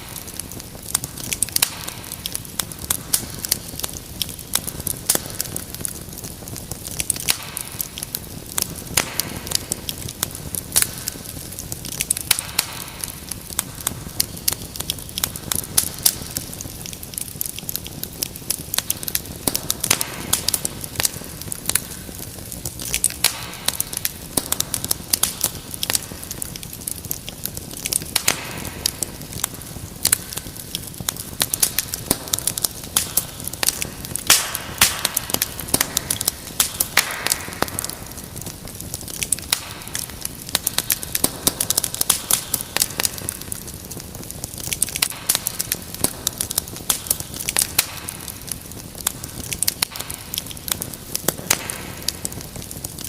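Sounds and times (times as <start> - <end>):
fire popping and snapping: 0.0 - 53.0
wood fire crackling: 0.0 - 53.0.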